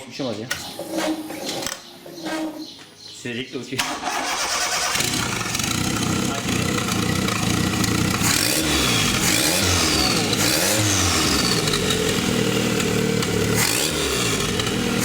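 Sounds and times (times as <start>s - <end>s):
car engine revving in blips: 4.0s - 15.0s.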